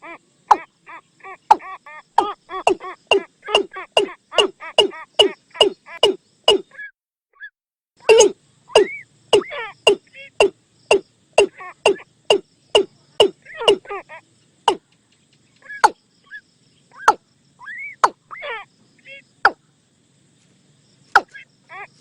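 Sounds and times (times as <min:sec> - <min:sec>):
bird sharp kok calls: 0:00.0 - 0:06.9, 0:08.0 - 0:14.0, 0:14.7 - 0:18.7, 0:21.2 - 0:21.5
bird short arched calls: 0:00.0 - 0:14.1.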